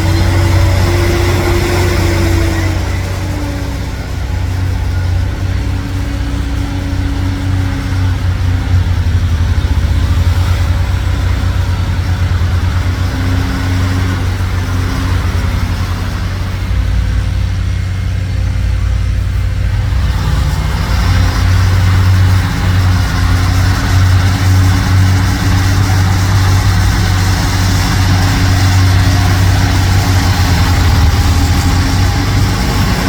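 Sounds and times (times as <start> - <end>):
truck diesel engine droning: 0.0 - 33.0.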